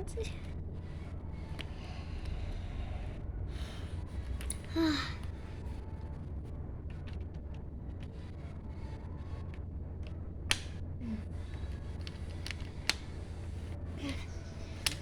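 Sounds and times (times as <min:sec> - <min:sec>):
steady low hum: 0:00.0 - 0:15.0
plastic bricks clicking together: 0:11.4 - 0:15.0.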